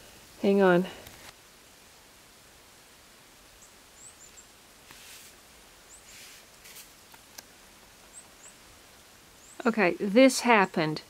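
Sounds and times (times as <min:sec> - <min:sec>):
steady hiss: 0:00.0 - 0:11.0
soft rustles: 0:04.8 - 0:05.4, 0:06.0 - 0:07.2.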